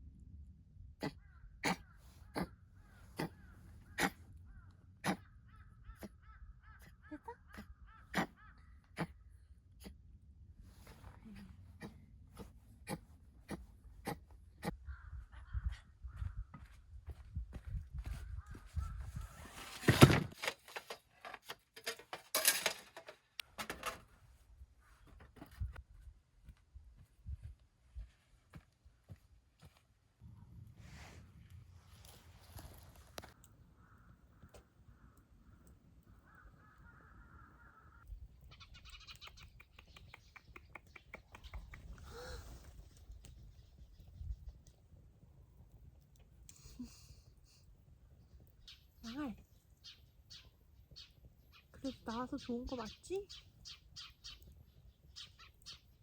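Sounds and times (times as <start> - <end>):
bird cawing: 1.0 - 9.2, 33.4 - 39.4.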